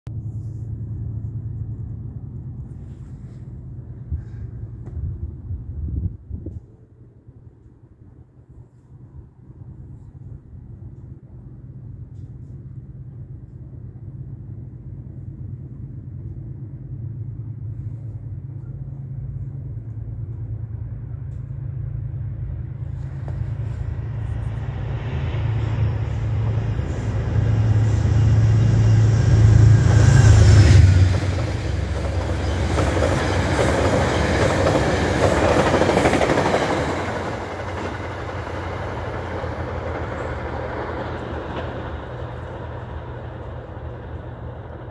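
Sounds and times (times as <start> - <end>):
train locomotive humming: 6.5 - 44.9
train wheels rattling on rails: 22.7 - 44.9.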